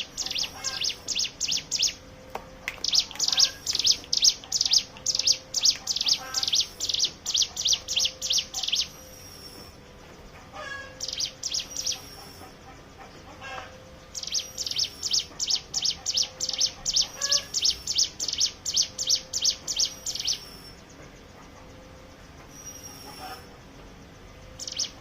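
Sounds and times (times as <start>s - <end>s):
bird singing rapid high notes: 0.0s - 2.0s, 2.8s - 9.7s, 10.9s - 12.4s, 14.1s - 20.8s, 24.6s - 25.0s.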